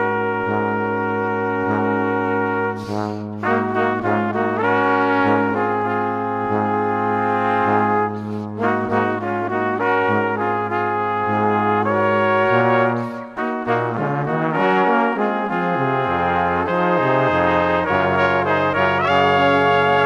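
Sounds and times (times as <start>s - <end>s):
brass instruments playing chords: 0.0s - 20.0s.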